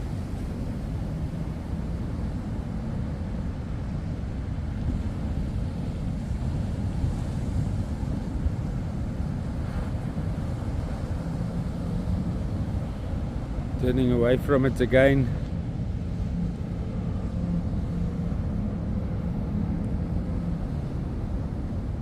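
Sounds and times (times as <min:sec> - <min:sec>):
wind buffeting microphone: 0:00.0 - 0:22.0
surf rushing: 0:03.4 - 0:22.0.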